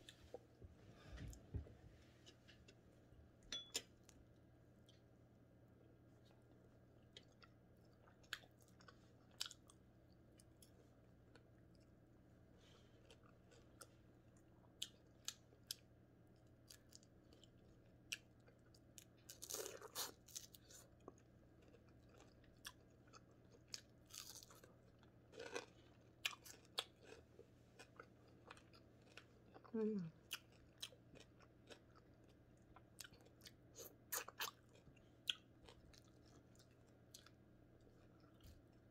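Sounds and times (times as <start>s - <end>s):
crunching fried fish: 23.8s - 27.2s.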